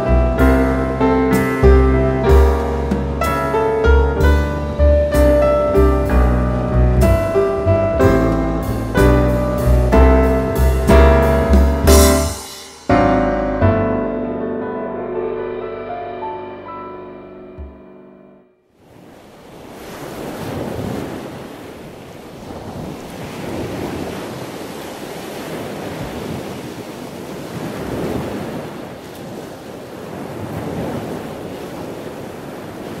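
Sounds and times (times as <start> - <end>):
ocean surf breaking: 0.0 - 13.3, 18.8 - 33.0
wind rumbling on microphone: 18.9 - 33.0.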